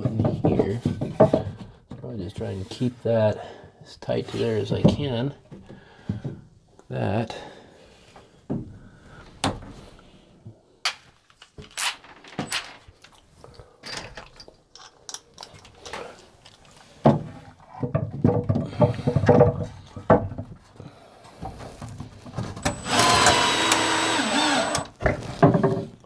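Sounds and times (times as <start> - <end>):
rattling and scraping: 21.6 - 25.7
sharp clicks and knocks: 21.9 - 25.7.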